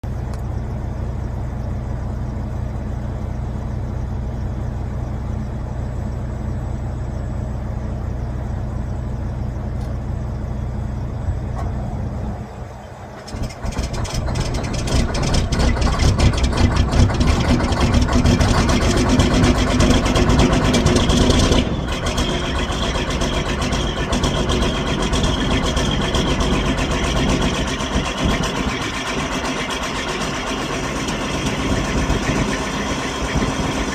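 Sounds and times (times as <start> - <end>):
diesel engine running rough: 0.0 - 33.9
steady low hum: 0.0 - 33.9.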